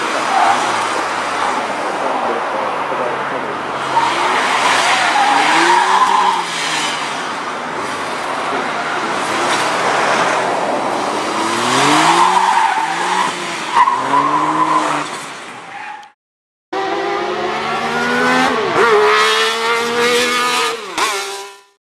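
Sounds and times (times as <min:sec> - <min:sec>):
car engine revving: 0:03.0 - 0:15.2, 0:16.8 - 0:21.7.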